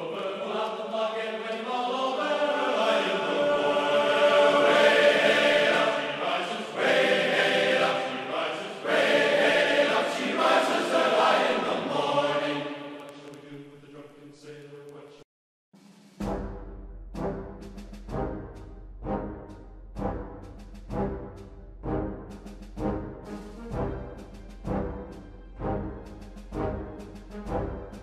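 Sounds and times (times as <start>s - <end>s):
choir chanting in long held notes: 0.0s - 14.0s.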